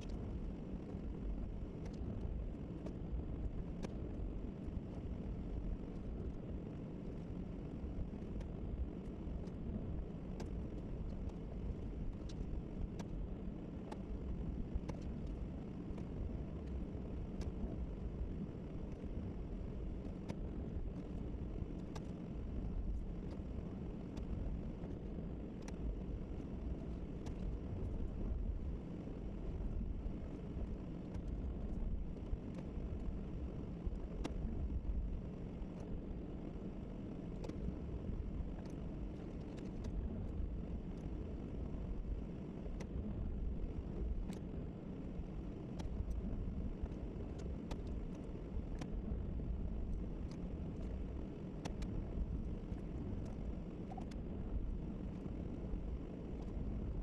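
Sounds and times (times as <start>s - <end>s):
faint clicks: 12.1s - 13.2s, 13.8s - 14.1s, 14.8s - 17.8s, 20.0s - 22.2s, 22.8s - 28.4s, 29.8s - 33.2s, 33.8s - 36.0s, 37.1s - 43.0s, 43.8s - 44.5s, 45.6s - 55.4s.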